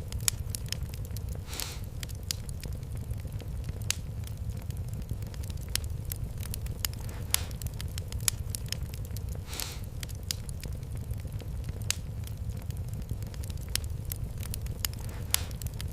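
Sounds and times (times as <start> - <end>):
fire hiss: 0.0 - 15.9
wood fire crackling and popping: 0.0 - 15.9.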